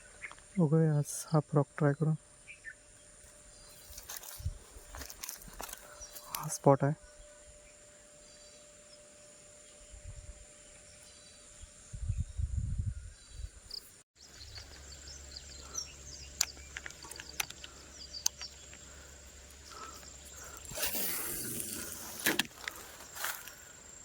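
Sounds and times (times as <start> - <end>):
high-pitched insect drone: 2.3 - 12.9, 13.7 - 24.0
sharp clicks: 16.3 - 18.8.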